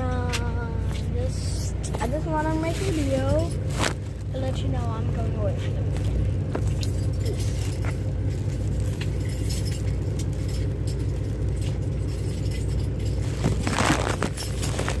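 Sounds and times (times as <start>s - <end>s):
rustle and clatter: 0.0s - 15.0s
truck engine humming: 0.0s - 15.0s.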